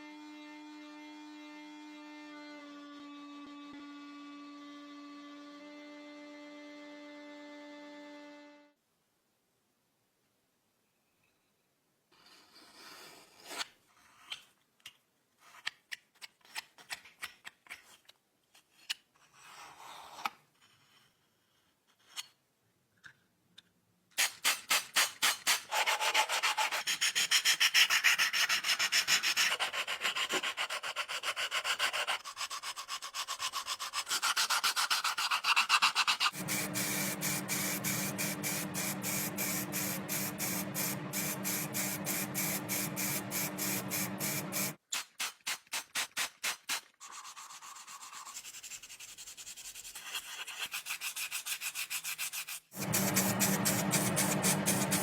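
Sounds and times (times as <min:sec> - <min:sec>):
rhythmic sanding strokes: 0:34.5 - 0:44.8, 0:52.1 - 0:55.0
steady hum: 0:36.4 - 0:44.8.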